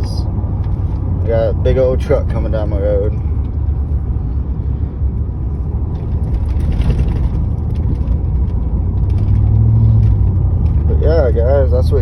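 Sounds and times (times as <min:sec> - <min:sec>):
pickup truck engine rumble: 0:00.0 - 0:12.0
road noise: 0:00.0 - 0:12.0.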